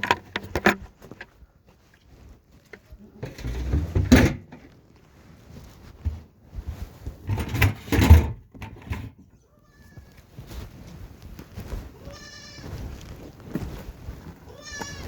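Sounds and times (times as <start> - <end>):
pen door rattling and scraping: 3.2 - 4.6, 7.2 - 9.2.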